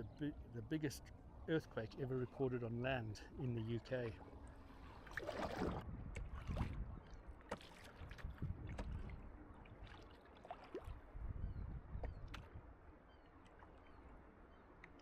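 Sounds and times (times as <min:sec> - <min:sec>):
water lapping against a canoe: 0:01.9 - 0:12.6
low wind rumble: 0:05.5 - 0:07.4, 0:08.0 - 0:09.9, 0:10.8 - 0:13.1
boat and paddle knocks: 0:07.4 - 0:09.2.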